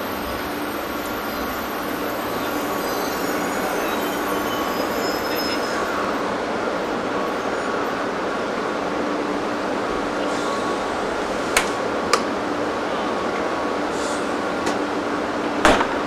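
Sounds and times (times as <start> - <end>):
train rumbling along track: 0.0 - 16.0
faint high wheel squeals: 0.1 - 8.0.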